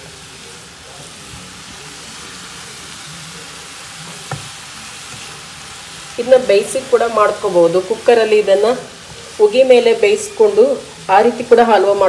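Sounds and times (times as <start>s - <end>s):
carrots sizzling in a pan: 0.0s - 12.0s
sharp knock: 4.3s - 4.5s.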